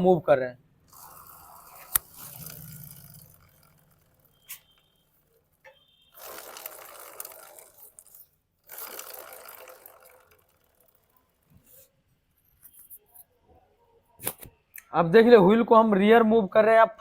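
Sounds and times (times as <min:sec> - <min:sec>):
wheel scraping and whirring: 0:00.9 - 0:11.9.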